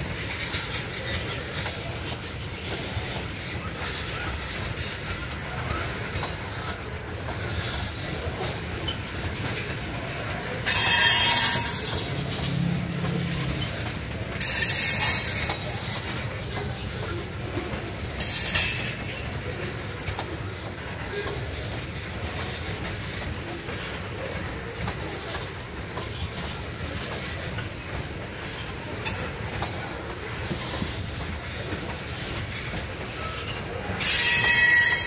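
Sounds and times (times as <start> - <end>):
steel wheels rolling on rail: 0.0 - 35.0
high wheel squeal: 10.7 - 12.2, 33.2 - 35.0.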